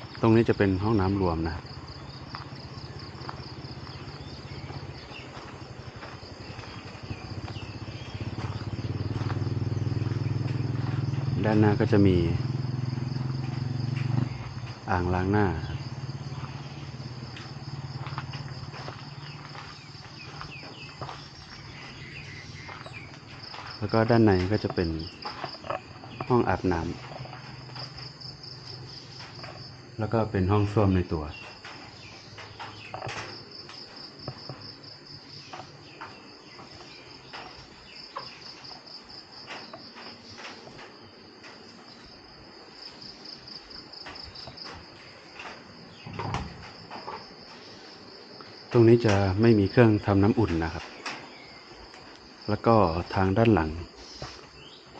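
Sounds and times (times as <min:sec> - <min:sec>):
crickets and insects chirring: 0:00.0 - 0:54.9
light clicks and knocks: 0:31.3 - 0:34.8, 0:43.8 - 0:47.6.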